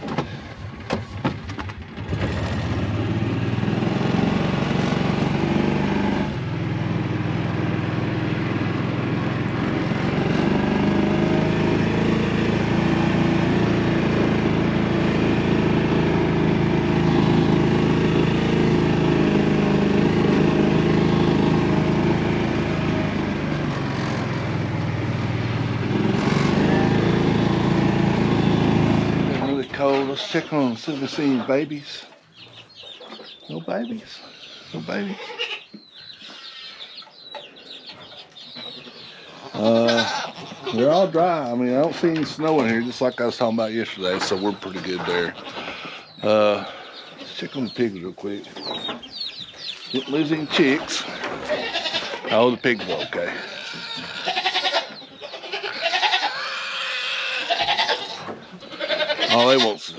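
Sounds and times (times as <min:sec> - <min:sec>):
utility vehicle engine running: 0:00.0 - 0:29.9.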